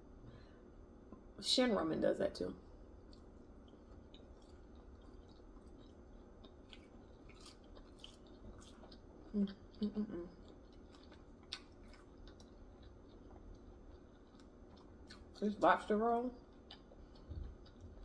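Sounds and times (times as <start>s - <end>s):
person chewing food: 2.7s - 15.5s, 16.4s - 18.0s.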